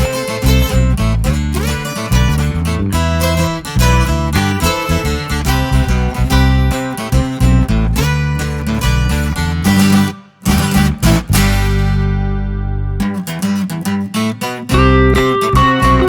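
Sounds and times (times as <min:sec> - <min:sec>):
guitar music over loudspeakers: 0:00.0 - 0:16.0.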